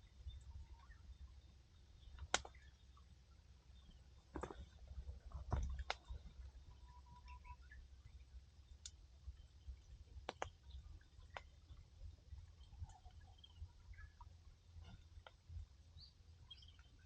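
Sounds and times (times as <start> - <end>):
faint low rumble: 0.0 - 17.0
wood fire crackling and popping: 2.2 - 2.6, 5.3 - 6.1.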